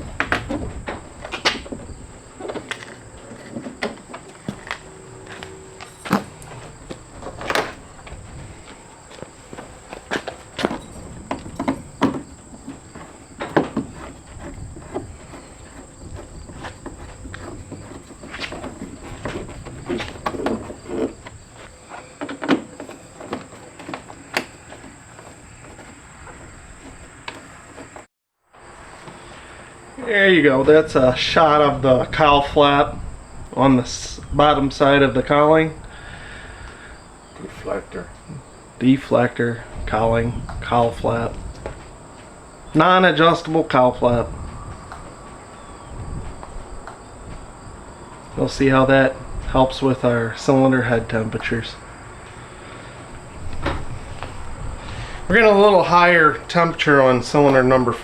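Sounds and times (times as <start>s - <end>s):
high insect trill: 0.0s - 58.0s
sharp clicks and knocks: 0.1s - 28.1s
high-pitched whine: 2.7s - 11.8s.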